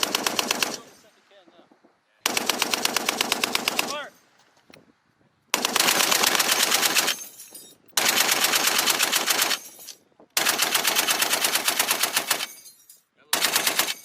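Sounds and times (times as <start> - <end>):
heavy machine gun bursts: 0.0 - 1.3, 2.2 - 4.3, 5.5 - 12.7, 13.3 - 14.0.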